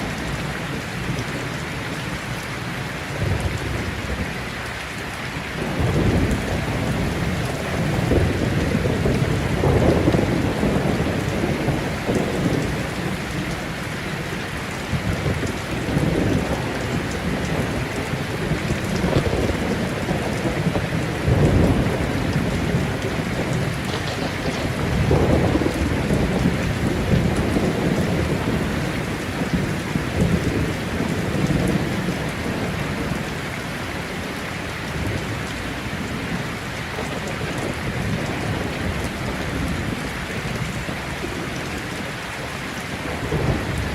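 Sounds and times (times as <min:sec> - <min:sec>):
heavy rain: 0:00.0 - 0:43.9
rolling thunder: 0:05.6 - 0:34.2.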